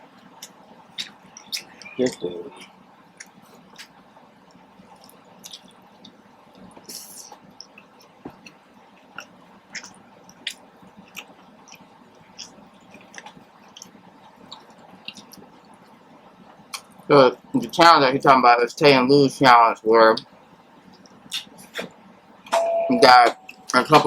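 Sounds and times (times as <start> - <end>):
person chewing with wet smacks: 0.1 - 17.8, 20.9 - 22.0.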